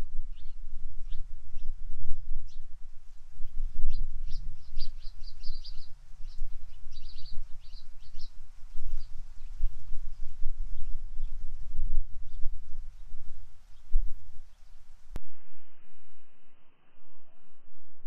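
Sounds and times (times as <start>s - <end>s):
bird chirping: 0.3s - 2.7s, 3.4s - 11.6s
low rumble: 8.6s - 18.0s.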